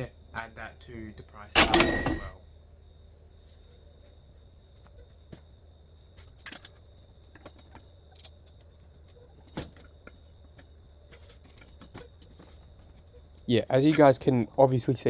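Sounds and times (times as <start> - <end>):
metallic clinks of tools: 1.6 - 2.4.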